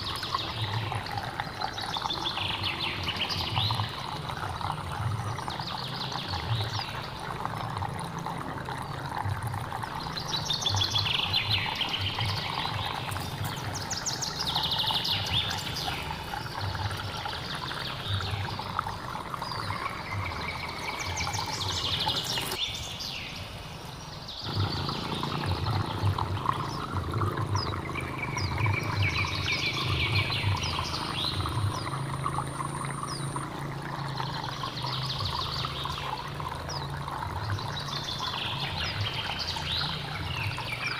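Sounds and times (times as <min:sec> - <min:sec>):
stream flowing: 0:00.0 - 0:40.9
birds chirping: 0:08.3 - 0:40.9.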